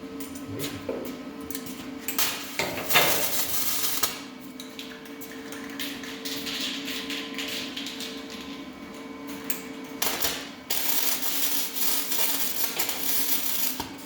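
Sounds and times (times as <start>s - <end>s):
welder crackling: 3.3s - 4.2s, 10.0s - 13.9s.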